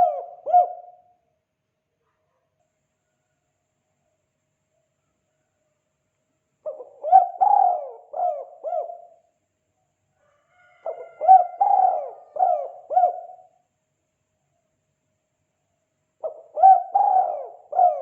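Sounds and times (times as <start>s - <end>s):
dove cooing: 0.0s - 1.1s, 6.6s - 9.3s, 10.7s - 13.6s, 16.2s - 18.0s.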